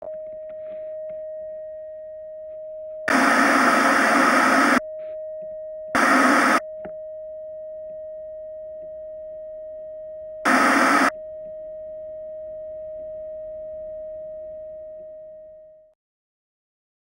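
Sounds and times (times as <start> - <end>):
loud bursts of static hiss: 3.1 - 4.8, 6.0 - 6.6, 10.5 - 11.1
steady high electronic tone: 3.1 - 4.8, 6.0 - 6.6, 10.5 - 11.1.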